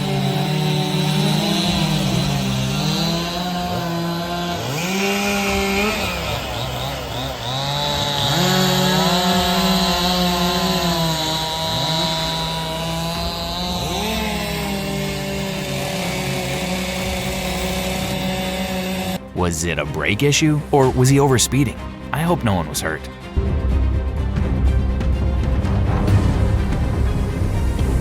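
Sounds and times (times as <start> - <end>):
chainsaw revving while cutting: 0.0 - 19.3.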